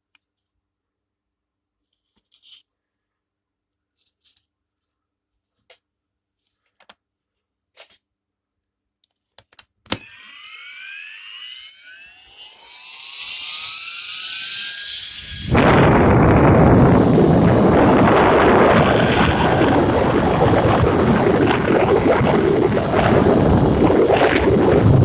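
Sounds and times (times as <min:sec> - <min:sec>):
electric fan whine rising: 0:09.9 - 0:25.0
loud rush of air: 0:12.4 - 0:25.0.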